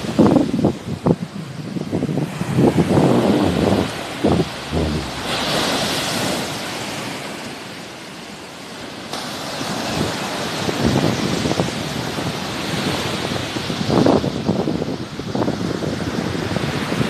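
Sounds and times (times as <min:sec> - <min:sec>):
wind on microphone: 0:00.0 - 0:06.6
sea waves washing onto shore: 0:00.0 - 0:13.8.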